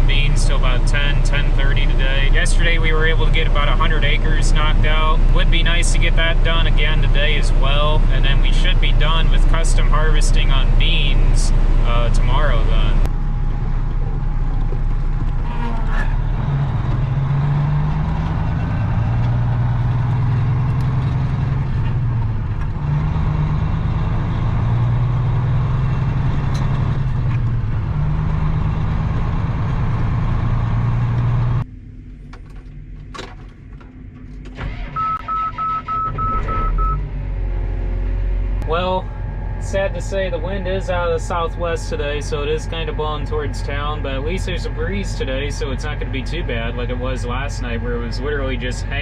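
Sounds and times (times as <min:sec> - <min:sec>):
truck engine running: 0:00.0 - 0:49.0
short high beeps: 0:35.0 - 0:37.0.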